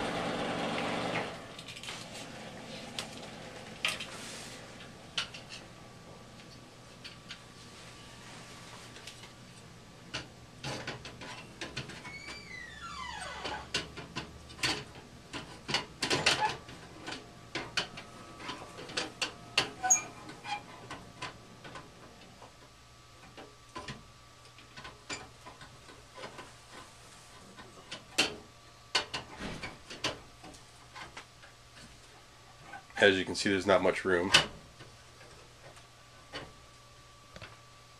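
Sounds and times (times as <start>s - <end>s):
faint steady hum: 0.8s - 37.9s
tools and parts clicking and knocking: 13.4s - 21.9s, 27.5s - 31.9s.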